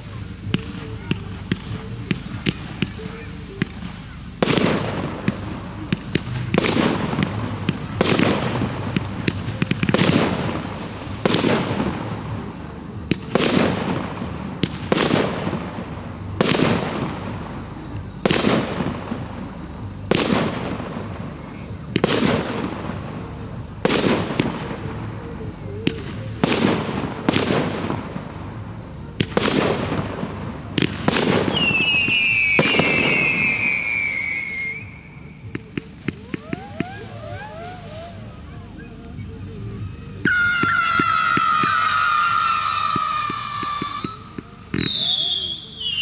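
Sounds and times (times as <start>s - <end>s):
firework shell bursts: 29.2s - 35.1s, 35.8s - 38.2s, 40.0s - 46.0s.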